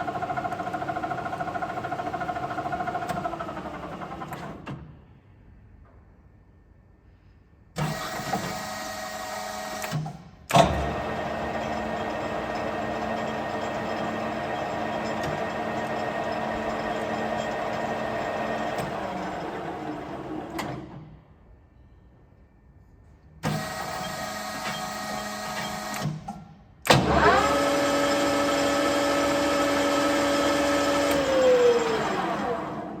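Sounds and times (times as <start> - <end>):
machine starting with a jolt: 9.8 - 21.2, 23.5 - 33.0
lathe motor hum and whine: 10.8 - 20.6, 26.9 - 33.0.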